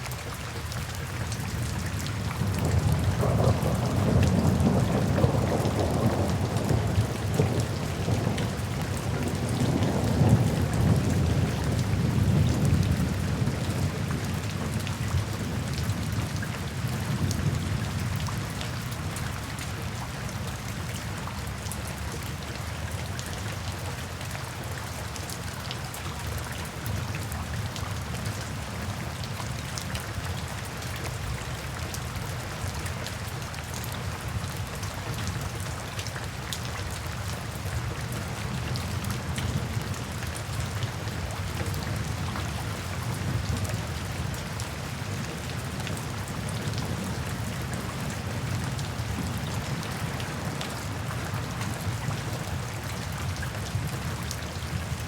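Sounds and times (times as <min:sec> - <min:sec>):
rain falling in forest: 0:00.0 - 0:55.0
low rolling thunder: 0:02.4 - 0:17.8.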